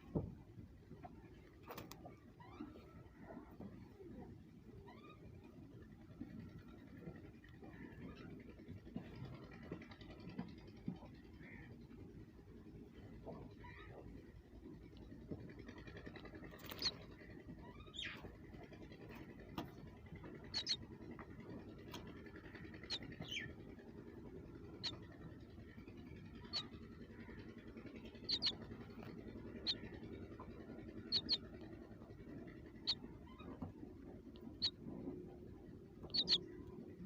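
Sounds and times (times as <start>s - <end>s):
faint steady hum: 0.0s - 37.0s
small birds chirping: 15.8s - 37.0s.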